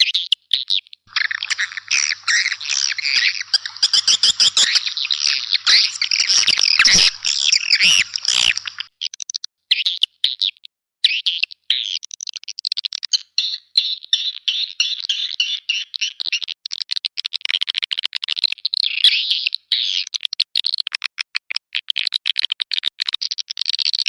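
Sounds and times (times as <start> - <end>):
swiftlets twittering: 1.1 - 8.9.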